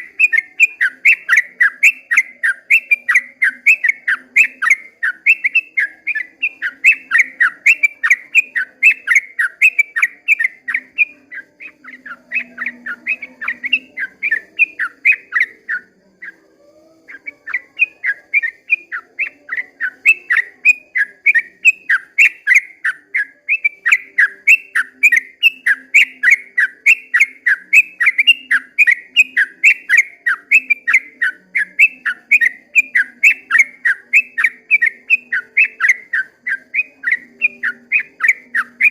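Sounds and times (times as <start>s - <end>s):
bird singing bubbling whistles: 17.2s - 38.9s.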